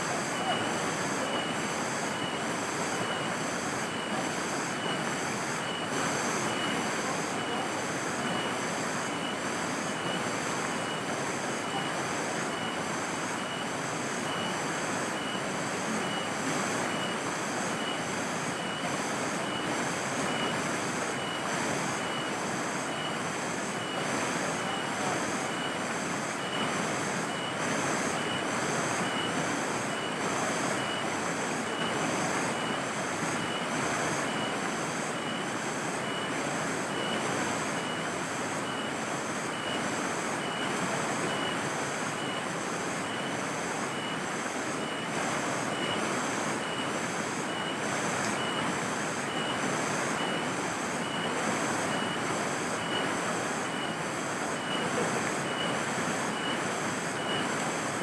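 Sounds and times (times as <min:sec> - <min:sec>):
insects chirping: 0:00.2 - 0:24.0.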